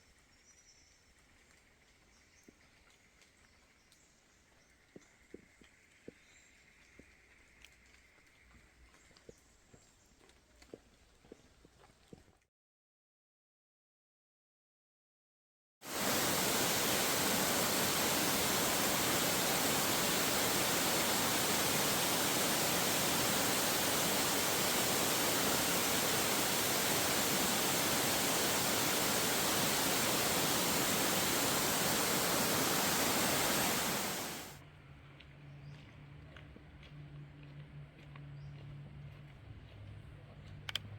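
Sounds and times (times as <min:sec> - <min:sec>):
waterfall pouring: 0:15.9 - 0:34.5.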